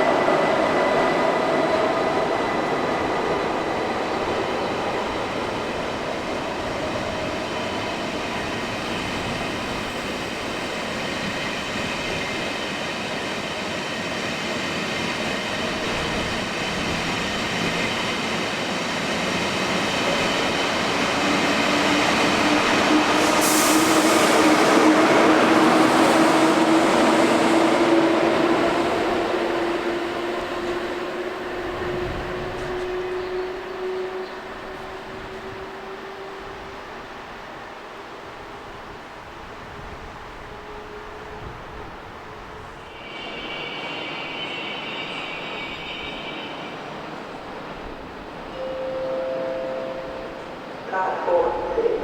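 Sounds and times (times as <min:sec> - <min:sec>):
electric train on rails: 0:00.0 - 0:52.0
train wheel squeal: 0:31.7 - 0:36.5, 0:42.6 - 0:47.9.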